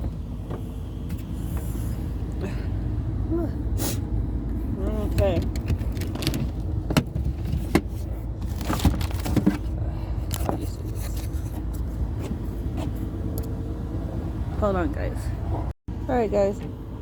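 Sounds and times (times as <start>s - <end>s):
car engine idling: 0.0s - 17.0s
sharp clicks and knocks: 5.1s - 7.9s.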